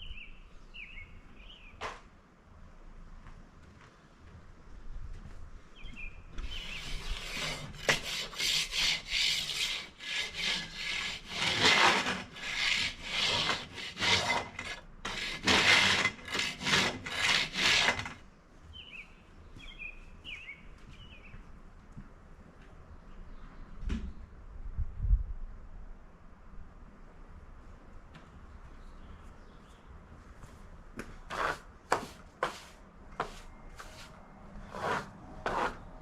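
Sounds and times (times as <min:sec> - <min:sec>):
rough scraping on wood: 0:06.4 - 0:18.2, 0:31.2 - 0:36.0.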